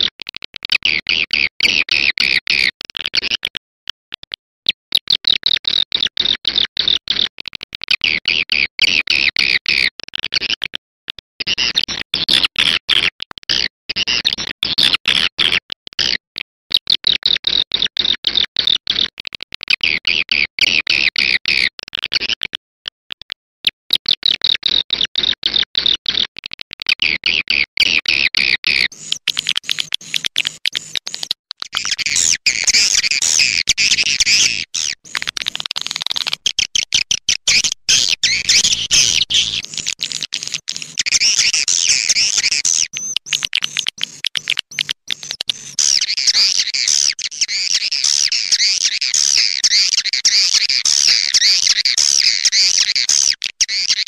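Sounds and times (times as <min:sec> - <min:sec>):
swiftlets twittering: 0:28.9 - 0:47.1.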